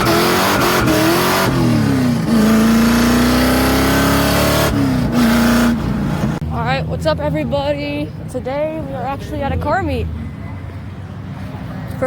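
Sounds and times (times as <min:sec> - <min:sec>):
car engine revving: 0:00.0 - 0:07.8.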